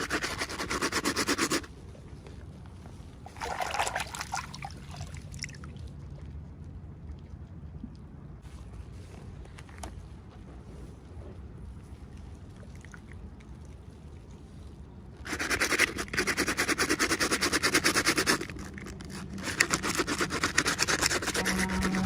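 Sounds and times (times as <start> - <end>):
hand scratching on packaging: 0.0 - 1.7, 15.3 - 22.0.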